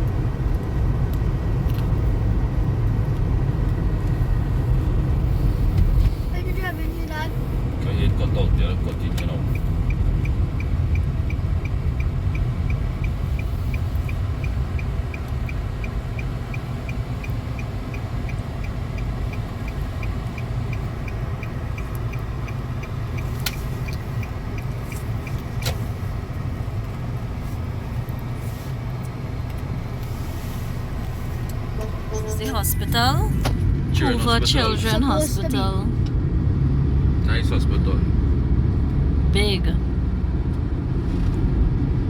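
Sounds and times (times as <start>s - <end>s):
car engine and tyre rumble: 0.0s - 42.0s
light regular ticking: 8.4s - 27.2s.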